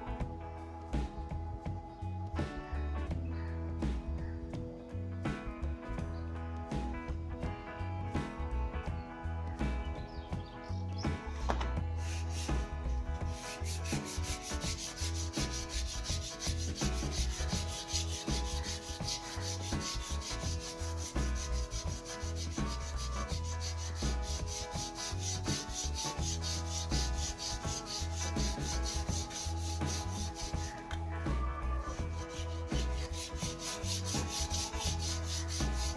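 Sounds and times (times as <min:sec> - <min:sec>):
sandpaper rubbing on wood: 0:12.0 - 0:30.8, 0:31.9 - 0:35.9.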